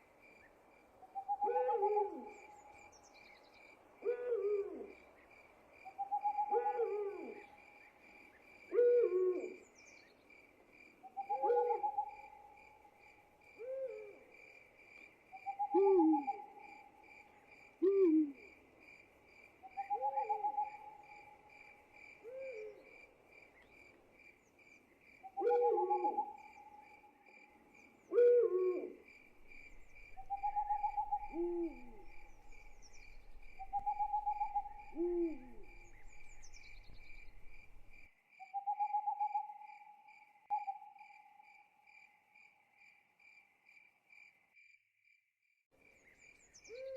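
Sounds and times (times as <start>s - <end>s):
crickets chirping: 0.0s - 45.2s
owls hooting: 1.2s - 2.4s, 6.0s - 7.4s, 15.4s - 16.6s, 25.4s - 26.5s, 28.1s - 38.0s.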